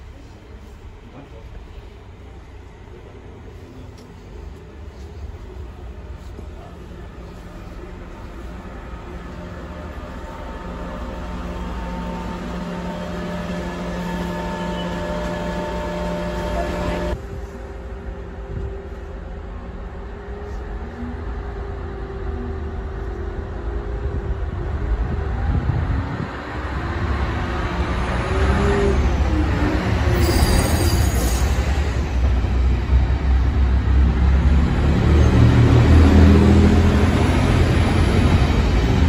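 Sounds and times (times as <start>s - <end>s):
train engines and wheels rumbling: 0.0s - 39.0s
high wheel squeal: 30.2s - 31.7s.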